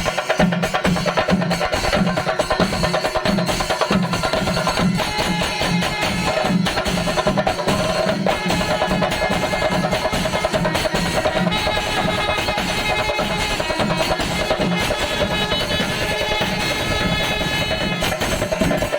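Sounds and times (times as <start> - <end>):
cymbals ringing: 0.0 - 18.9
fast drum roll: 0.0 - 18.9
steady low drumbeat: 0.0 - 18.9.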